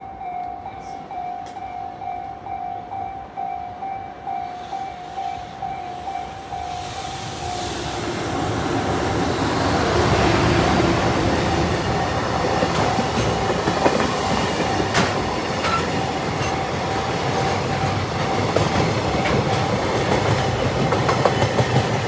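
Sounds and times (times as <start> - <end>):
level-crossing warning bell: 0.0 - 7.7, 9.9 - 22.0
freight train passing: 0.0 - 22.0.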